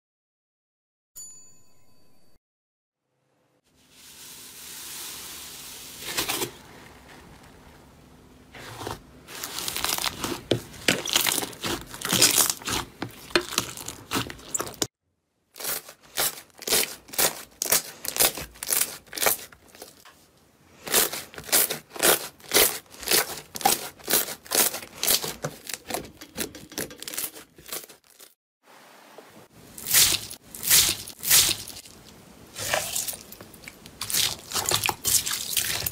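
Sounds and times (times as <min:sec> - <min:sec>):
slime crackling and popping: 0:09.5 - 0:14.9.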